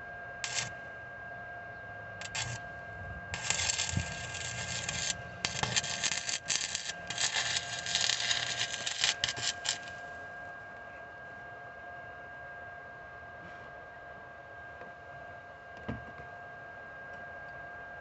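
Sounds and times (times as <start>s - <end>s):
faint steady hum: 0.0s - 17.7s
welding arc crackling: 0.4s - 0.7s, 2.2s - 2.6s, 3.4s - 10.0s.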